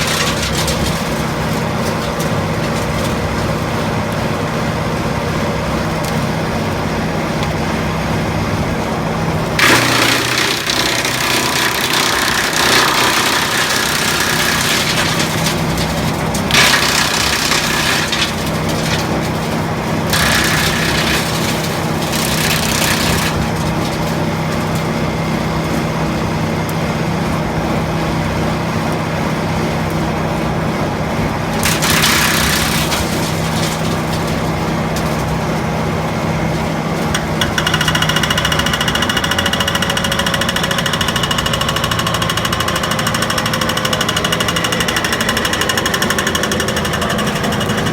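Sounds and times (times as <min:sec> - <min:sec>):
branches being shredded: 0:00.0 - 0:04.1, 0:09.6 - 0:25.1, 0:31.5 - 0:36.8
branch chipper running: 0:00.0 - 0:47.9.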